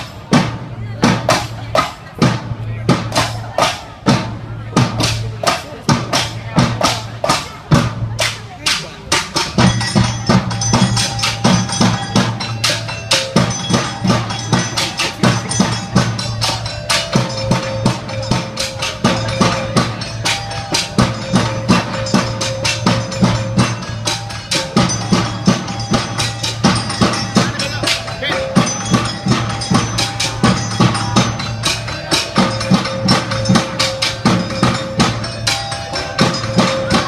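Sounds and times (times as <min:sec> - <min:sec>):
percussion ensemble drumming: 0:00.0 - 0:37.0
melody of held notes: 0:09.0 - 0:37.0.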